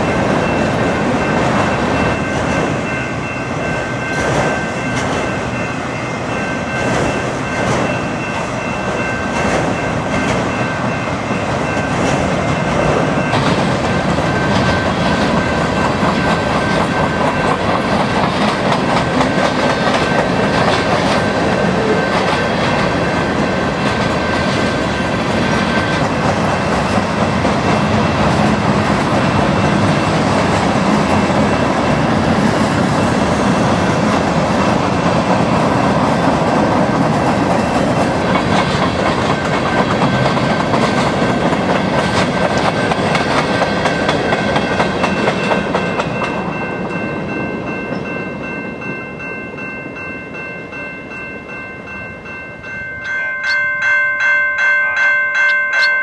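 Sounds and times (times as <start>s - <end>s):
freight train rumble: 0.0s - 56.0s
wheels clacking over rail joints: 6.8s - 47.3s.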